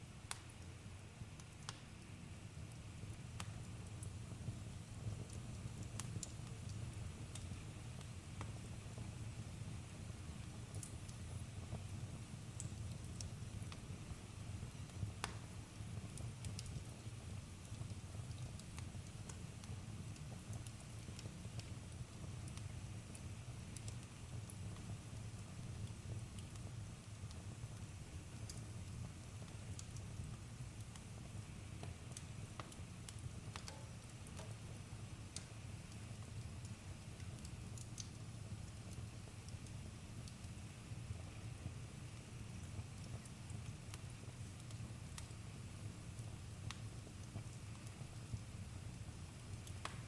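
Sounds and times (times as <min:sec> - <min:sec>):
campfire crackling and popping: 0:00.3 - 0:00.7, 0:01.4 - 0:02.0, 0:02.6 - 0:50.0.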